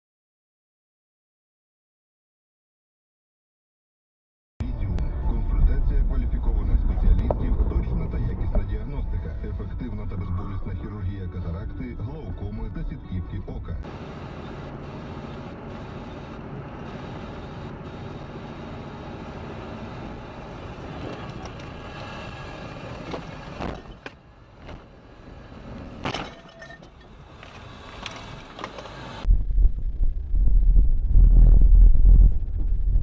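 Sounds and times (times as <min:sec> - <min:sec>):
loud low rumble: 0:04.6 - 0:13.9, 0:29.3 - 0:33.0
car engine and tyre noise: 0:04.9 - 0:10.6, 0:13.8 - 0:29.3.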